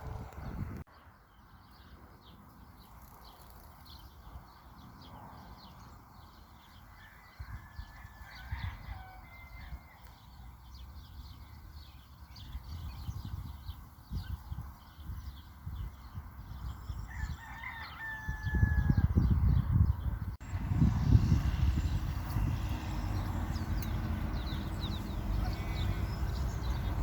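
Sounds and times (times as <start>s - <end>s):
low rumble on microphone: 0.0s - 0.8s, 18.3s - 27.0s
rooster crowing: 7.0s - 10.0s, 17.1s - 19.2s.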